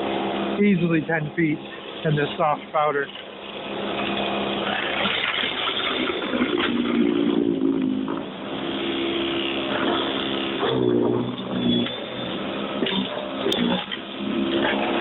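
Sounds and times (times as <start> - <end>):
snowblower motor hum: 0.0 - 15.0.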